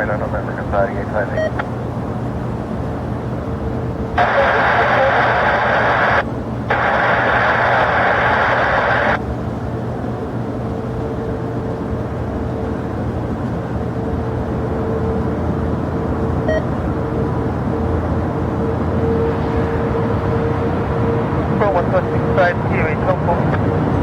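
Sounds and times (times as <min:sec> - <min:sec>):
radio hiss: 0:00.0 - 0:01.6, 0:04.2 - 0:09.2, 0:21.6 - 0:23.5
faint steady whine: 0:00.0 - 0:23.5
jet engines rumbling: 0:00.0 - 0:24.0.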